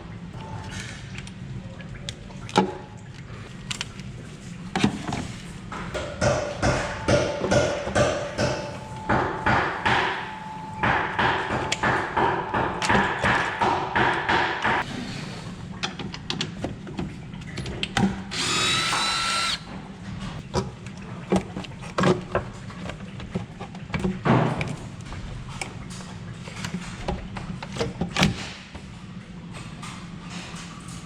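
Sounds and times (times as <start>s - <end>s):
power drill whining: 18.3s - 19.7s.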